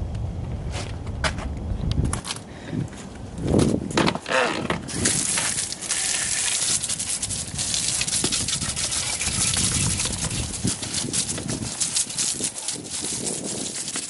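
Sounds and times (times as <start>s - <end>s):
brush scrubbing a wheel: 4.9s - 14.0s.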